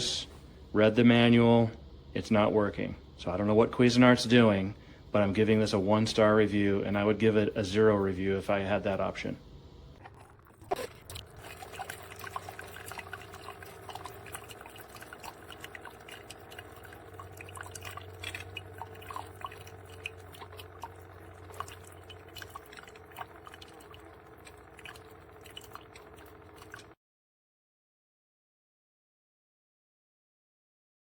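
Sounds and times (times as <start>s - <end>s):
faint low hum: 0.0s - 27.0s
coffee maker dripping and gurgling: 9.9s - 27.0s.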